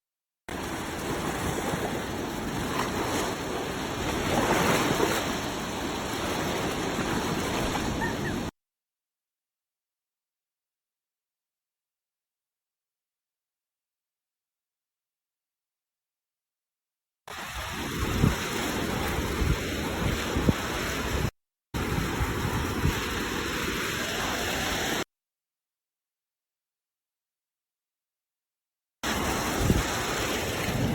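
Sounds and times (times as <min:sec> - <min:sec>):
sea waves washing onto beach: 0:00.5 - 0:08.5, 0:17.3 - 0:25.0, 0:29.0 - 0:30.9.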